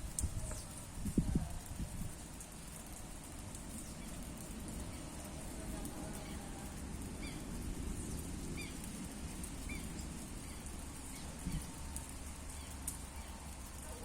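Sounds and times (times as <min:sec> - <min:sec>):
low background noise: 0:00.0 - 0:14.0
bird chirping: 0:09.5 - 0:11.8.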